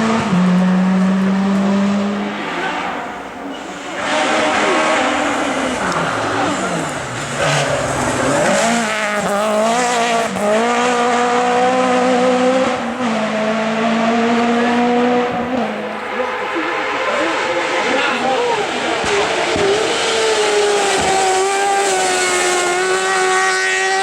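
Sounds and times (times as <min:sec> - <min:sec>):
race car engine revving: 0:00.0 - 0:24.0.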